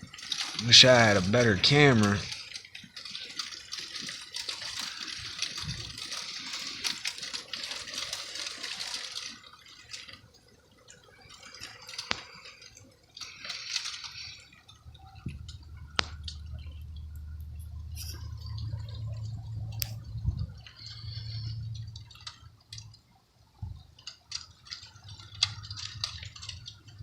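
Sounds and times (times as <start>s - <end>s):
wet snow pattering and dripping: 0.0s - 27.0s
low steady hum: 11.1s - 27.0s.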